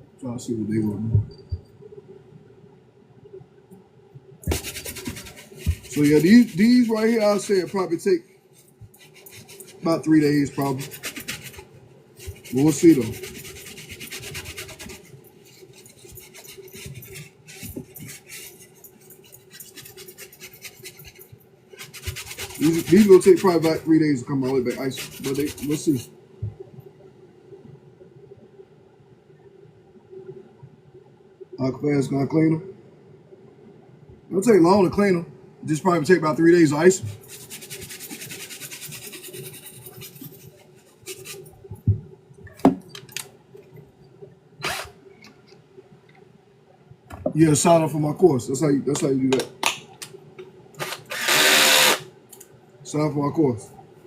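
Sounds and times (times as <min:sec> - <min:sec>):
steady low hum: 0:00.0 - 0:49.6
brush scrubbing a sneaker: 0:04.4 - 0:26.1, 0:36.9 - 0:41.6.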